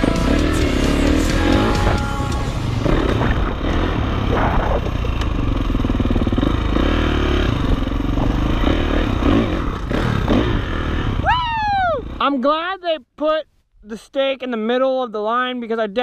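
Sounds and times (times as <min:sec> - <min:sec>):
dirt bike engine running: 0:00.0 - 0:12.6.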